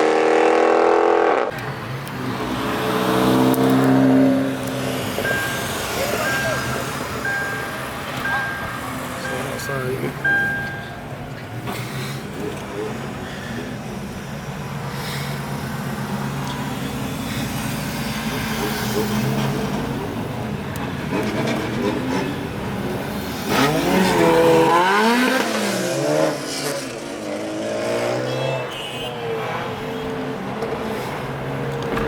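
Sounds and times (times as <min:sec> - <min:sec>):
car engines running: 0:01.4 - 0:28.7, 0:29.3 - 0:32.0
engine revving hard: 0:23.4 - 0:28.6.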